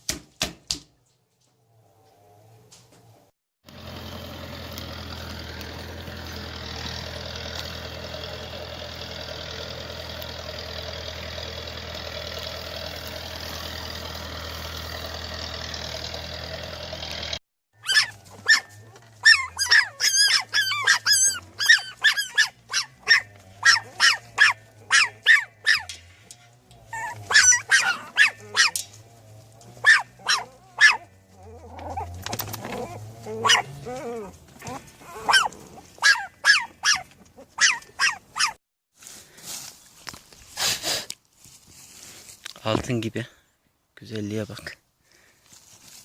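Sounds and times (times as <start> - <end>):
vehicle engine running: 1.6 - 38.5
dog yapping: 17.8 - 26.0, 26.9 - 28.8, 29.8 - 38.6.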